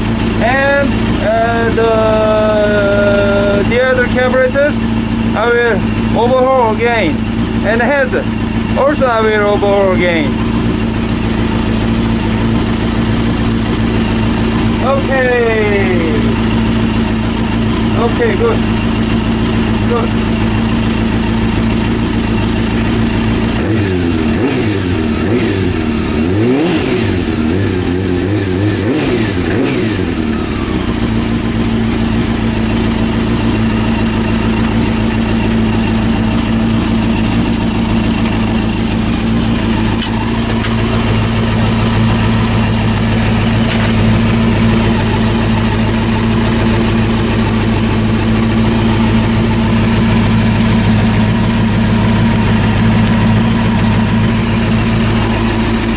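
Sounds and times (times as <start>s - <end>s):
motorcycle engine revving and idling: 0.0s - 55.9s.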